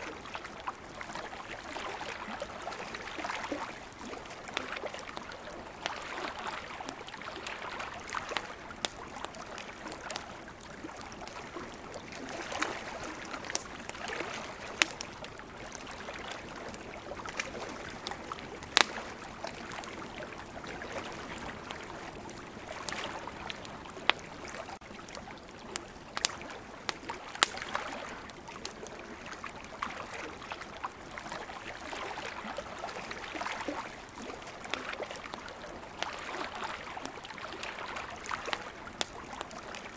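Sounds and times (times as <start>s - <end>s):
wood fire crackling and popping: 3.1s - 29.4s, 37.0s - 39.9s.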